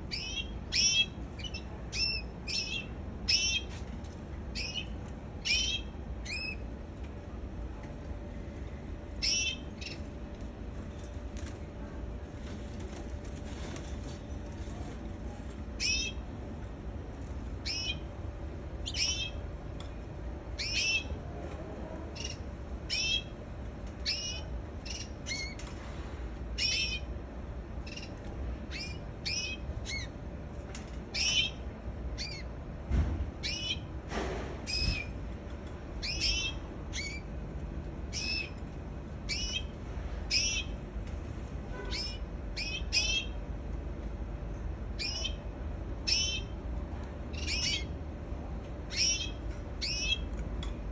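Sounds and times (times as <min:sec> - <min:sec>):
canary calling: 0:00.1 - 0:03.8, 0:04.5 - 0:06.6, 0:09.2 - 0:10.0, 0:15.8 - 0:16.2, 0:17.6 - 0:18.1, 0:18.8 - 0:19.4, 0:20.6 - 0:21.2, 0:22.2 - 0:23.3, 0:24.0 - 0:25.6, 0:26.6 - 0:27.1, 0:27.8 - 0:30.1, 0:31.1 - 0:31.6, 0:32.2 - 0:32.5, 0:33.4 - 0:33.9, 0:36.0 - 0:37.3, 0:38.1 - 0:38.6, 0:39.3 - 0:39.7, 0:40.3 - 0:40.8, 0:41.9 - 0:43.4, 0:45.0 - 0:46.6, 0:47.3 - 0:48.0, 0:48.9 - 0:50.3.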